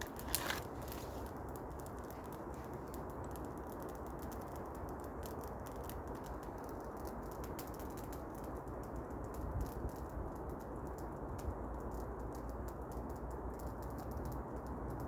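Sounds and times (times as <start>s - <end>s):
fire hissing: 0.0s - 1.6s
campfire crackling and popping: 0.0s - 15.0s.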